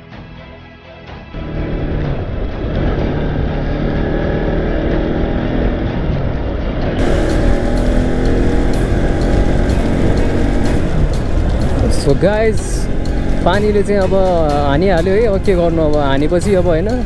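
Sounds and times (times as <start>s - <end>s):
motorcycle engine running: 7.0s - 17.0s
wind noise: 7.0s - 17.0s.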